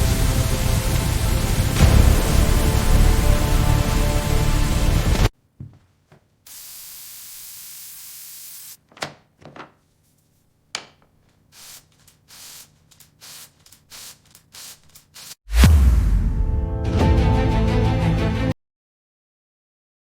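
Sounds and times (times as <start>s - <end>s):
spray hissing: 0.0s - 5.3s, 6.5s - 8.8s, 11.5s - 15.4s
short spray bursts: 6.5s - 8.8s, 11.5s - 15.4s.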